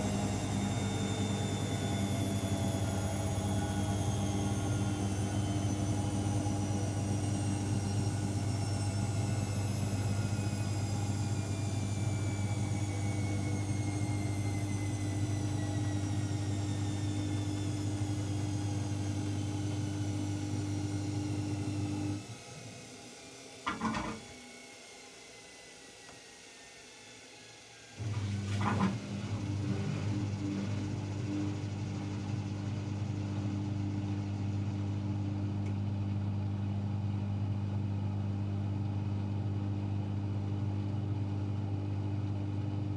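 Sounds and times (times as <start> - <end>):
drain pump hum: 0.0 - 22.2
washing machine motor whine: 0.0 - 42.9.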